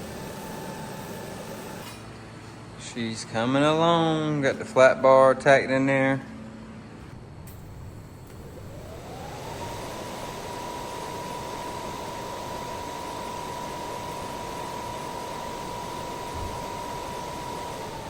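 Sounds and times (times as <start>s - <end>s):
power tool motor whining: 0.0s - 2.1s, 7.5s - 18.0s.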